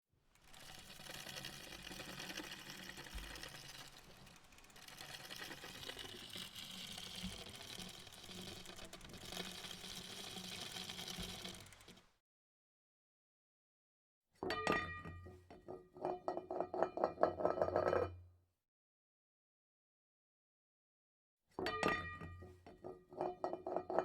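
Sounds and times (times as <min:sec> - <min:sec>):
small machine clattering: 0:00.2 - 0:12.2.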